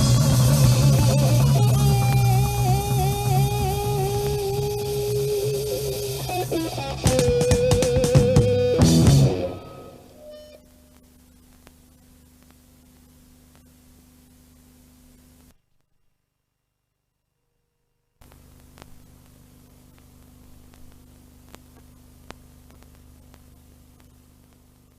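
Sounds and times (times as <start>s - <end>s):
rock band playing: 0.0s - 10.6s
faint hum: 0.0s - 24.9s.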